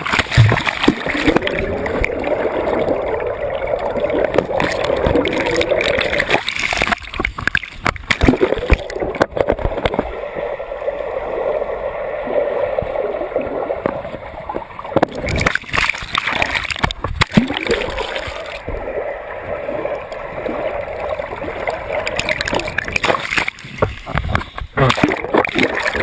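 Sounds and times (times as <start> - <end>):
water splashing and gurgling: 0.0 - 26.0
irregular knocks and thumps: 0.1 - 1.0.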